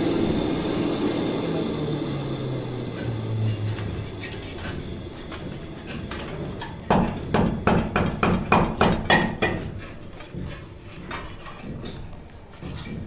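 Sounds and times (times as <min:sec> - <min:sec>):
sharp knocks: 0:06.8 - 0:10.6.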